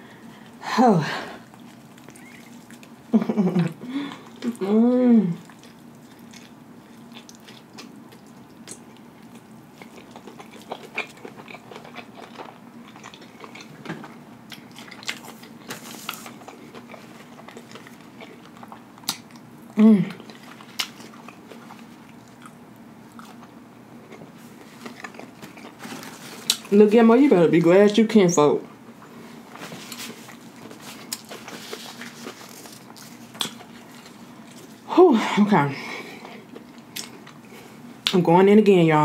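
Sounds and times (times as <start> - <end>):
person chewing: 1.4 - 26.7, 29.5 - 34.9, 36.0 - 37.8
person humming: 3.5 - 5.4, 19.8 - 20.2.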